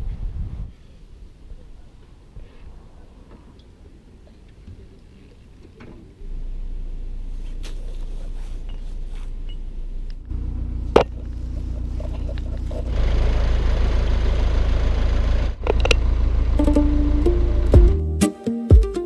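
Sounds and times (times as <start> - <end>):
diesel engine humming: 6.1 - 18.2.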